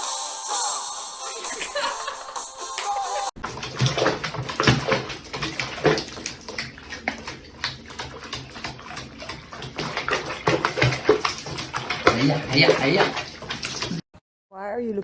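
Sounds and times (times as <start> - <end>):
water splashing in a bathtub: 3.4 - 14.1.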